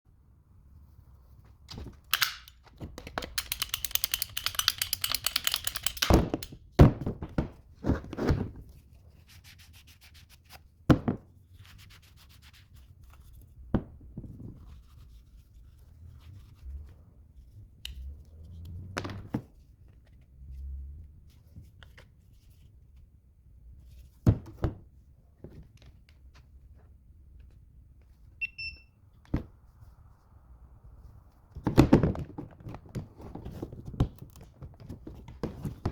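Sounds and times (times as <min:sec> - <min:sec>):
rattling clicks: 0:01.7 - 0:06.6
short electronic beep: 0:28.4 - 0:28.9.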